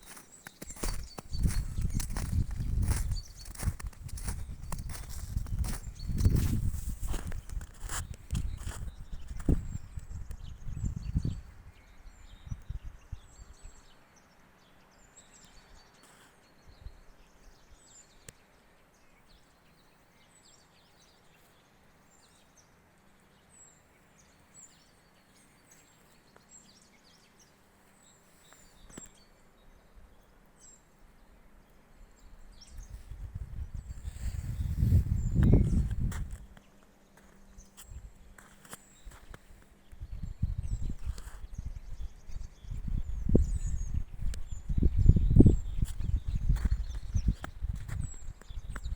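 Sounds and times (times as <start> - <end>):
footsteps: 0.0 - 9.6
woodland ambience: 0.0 - 10.7, 13.4 - 48.9
small birds chirping: 0.0 - 48.9.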